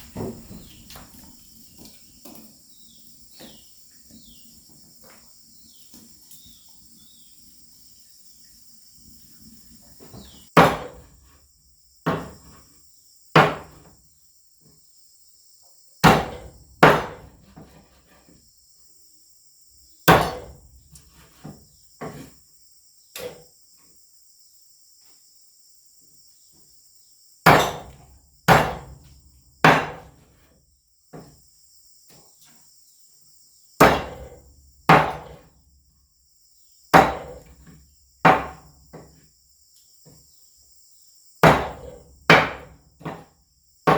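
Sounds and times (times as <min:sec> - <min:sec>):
insects droning: 0:00.0 - 0:43.9.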